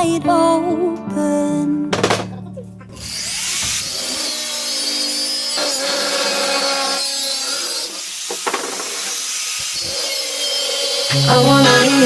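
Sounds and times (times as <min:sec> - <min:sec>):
power tool cutting: 0:03.0 - 0:12.0.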